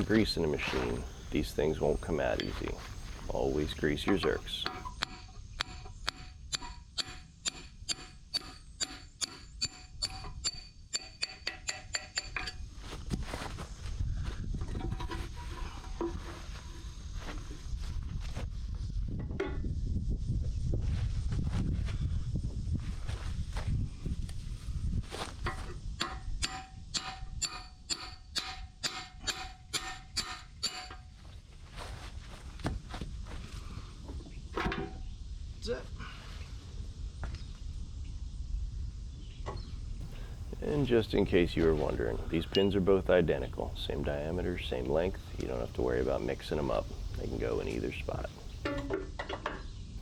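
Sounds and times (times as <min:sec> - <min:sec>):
hammer striking steel pin: 0:04.6 - 0:12.6, 0:26.0 - 0:31.0.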